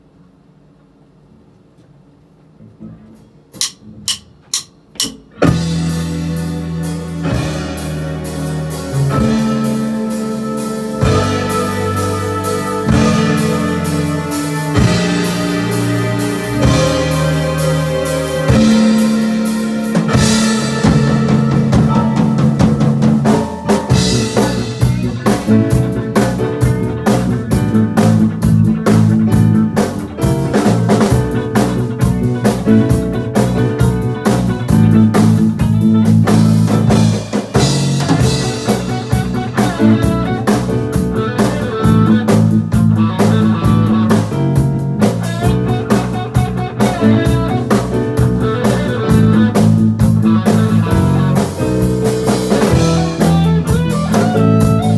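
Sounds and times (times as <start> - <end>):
guitar: 2.6 - 54.9
drum kit beat: 3.5 - 54.9
live band over loud pa: 3.5 - 54.9.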